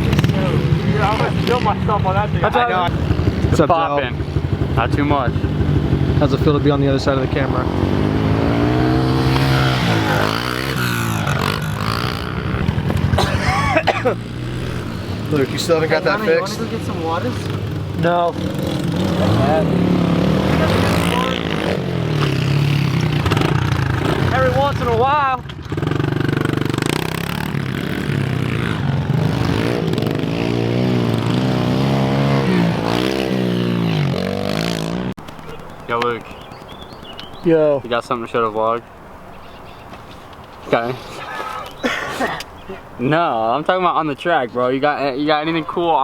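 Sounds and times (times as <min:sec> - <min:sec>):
pit bike engine running: 0:00.0 - 0:25.0.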